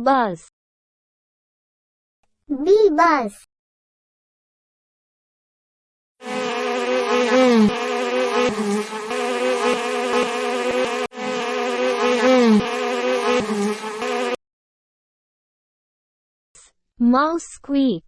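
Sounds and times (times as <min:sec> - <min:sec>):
bee buzzing: 0:06.2 - 0:14.4.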